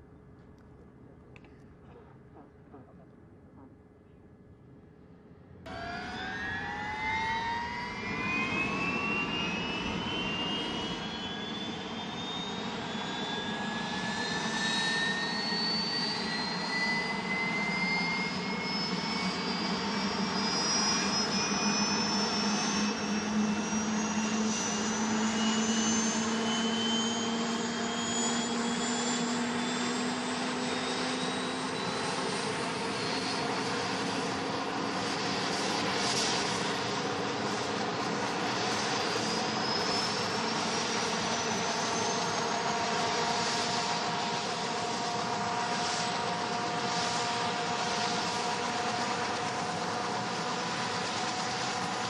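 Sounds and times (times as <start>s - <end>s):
helicopter turbine whine rising: 5.6s - 52.0s.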